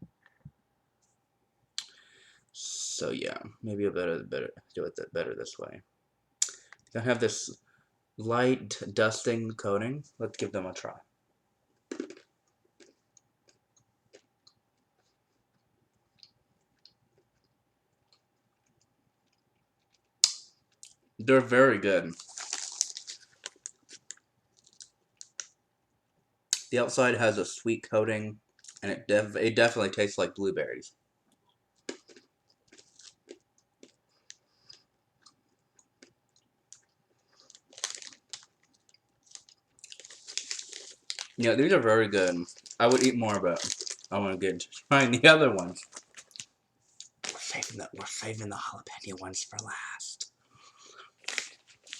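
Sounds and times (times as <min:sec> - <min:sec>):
chewing crunches: 0:31.3 - 0:41.4, 0:42.5 - 0:44.1.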